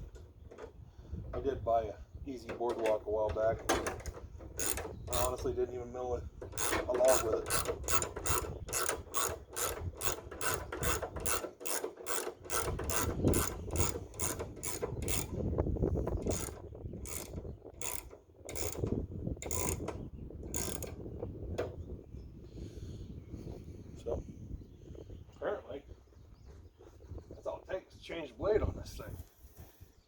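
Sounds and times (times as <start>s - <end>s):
ratchet wrench clicking: 4.6s - 5.4s, 6.5s - 15.4s, 16.2s - 19.9s, 20.5s - 21.0s.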